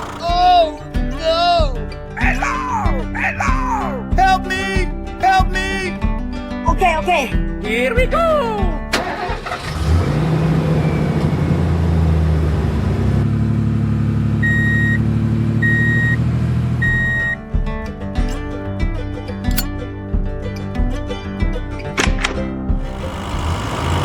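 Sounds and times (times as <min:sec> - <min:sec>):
vehicle engine running: 0:00.0 - 0:00.7, 0:09.2 - 0:17.3, 0:22.0 - 0:24.0.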